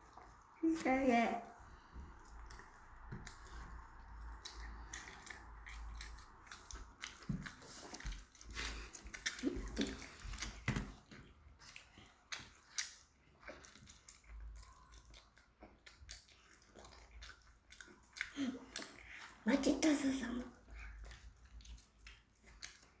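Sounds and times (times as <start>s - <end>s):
chewing crisp pizza crust: 1.5s - 23.0s
wet mouth sounds: 1.7s - 23.0s.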